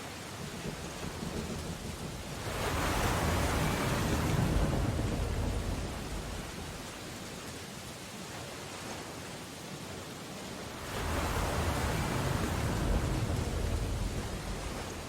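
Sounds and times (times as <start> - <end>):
steady rain: 0.0 - 15.0
deep rumble and hiss: 0.6 - 7.4, 10.9 - 15.0.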